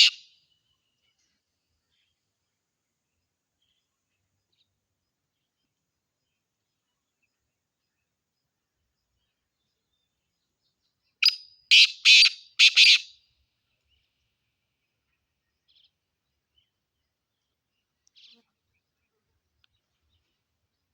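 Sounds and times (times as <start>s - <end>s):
bird calling harsh notes: 0.0s - 0.3s, 11.2s - 13.2s.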